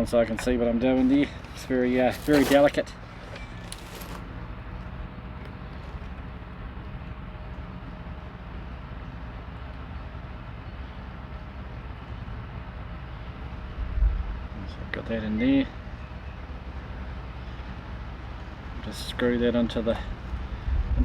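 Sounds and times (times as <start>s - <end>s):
faint constant hum: 0.0s - 21.0s
handling of parts: 0.4s - 4.5s
low background rumble: 18.8s - 21.0s.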